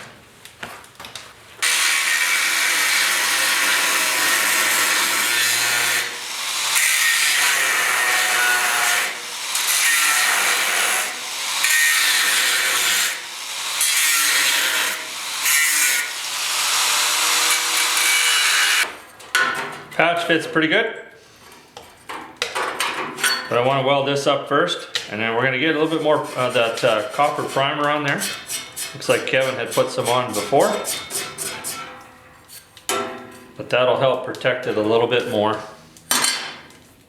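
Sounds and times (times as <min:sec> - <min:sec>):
cut-off wheel cutting sheet steel: 0:01.6 - 0:19.0.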